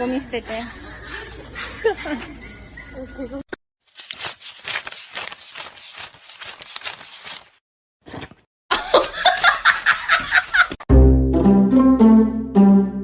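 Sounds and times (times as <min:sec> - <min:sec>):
person laughing: 0:08.7 - 0:10.8
music: 0:10.9 - 0:13.0.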